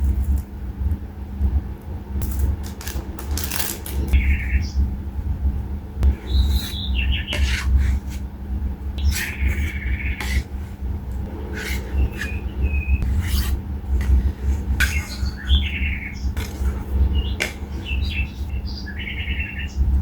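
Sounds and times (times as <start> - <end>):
low rumble: 0.0 - 20.0
birds chirping: 3.0 - 4.9, 6.0 - 8.2, 8.9 - 20.0.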